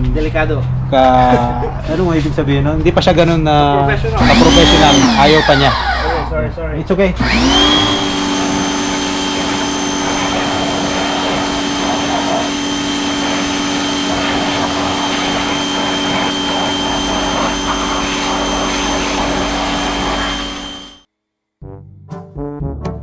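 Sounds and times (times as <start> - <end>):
vacuum motor whining: 4.2 - 6.4, 7.2 - 21.1
rushing air: 7.2 - 20.9.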